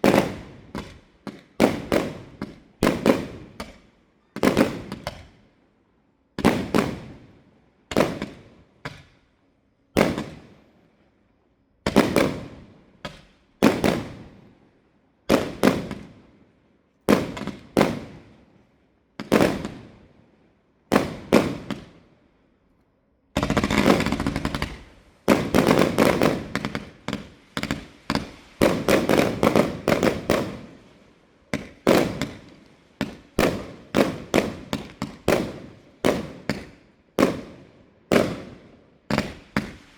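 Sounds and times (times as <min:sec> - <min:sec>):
fireworks bangs and crackles: 0:00.0 - 0:05.4, 0:06.4 - 0:09.2, 0:09.9 - 0:10.8, 0:11.9 - 0:14.6, 0:15.2 - 0:16.5, 0:17.1 - 0:20.2, 0:20.9 - 0:22.1, 0:23.3 - 0:39.9.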